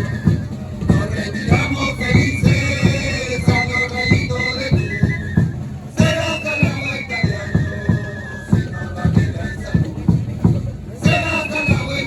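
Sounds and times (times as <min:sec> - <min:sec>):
drums beating: 0:00.0 - 0:12.0.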